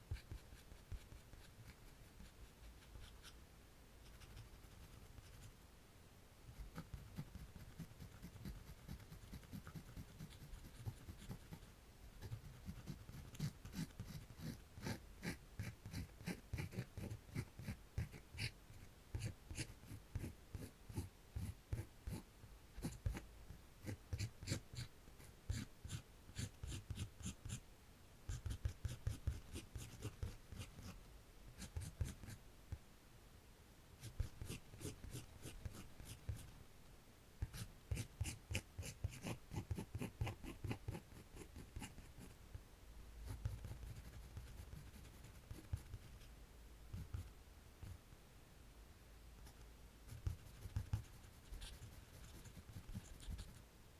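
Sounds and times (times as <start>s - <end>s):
pencil scratching on paper: 0.1s - 3.4s, 6.5s - 22.2s, 22.8s - 23.2s, 23.8s - 27.6s, 28.3s - 31.0s, 31.6s - 32.4s, 34.0s - 36.5s, 37.4s - 42.4s, 43.2s - 46.3s, 46.9s - 48.0s, 50.1s - 53.6s.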